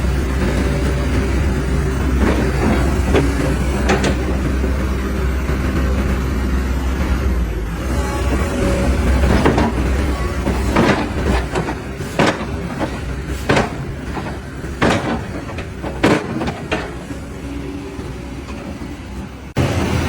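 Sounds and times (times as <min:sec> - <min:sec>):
construction knocks: 0:02.1 - 0:04.7, 0:08.7 - 0:19.3.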